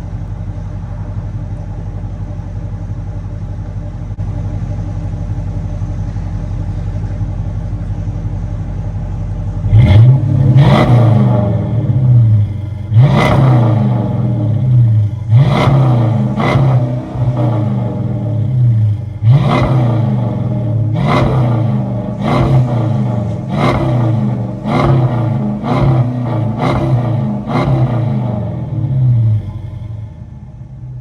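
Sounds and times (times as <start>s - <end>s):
car engine idling: 0.0s - 31.0s
car engine revving: 9.2s - 31.0s.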